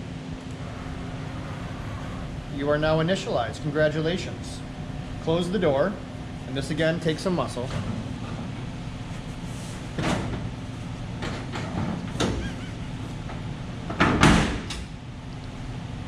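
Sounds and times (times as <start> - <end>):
machine door knocking and banging shut: 11.2 - 12.5, 13.9 - 14.9.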